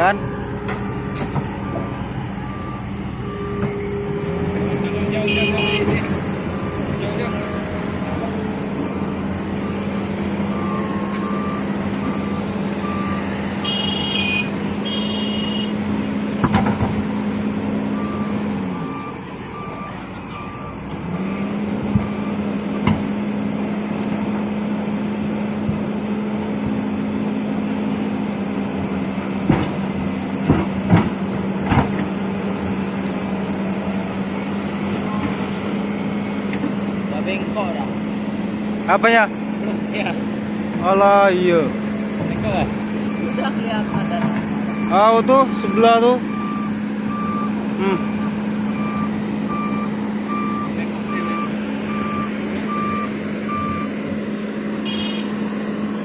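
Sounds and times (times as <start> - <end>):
reversing alarm beeping: 0.0 - 6.0, 6.6 - 15.7, 18.0 - 22.5, 43.0 - 54.0
diesel engine running: 0.0 - 56.0.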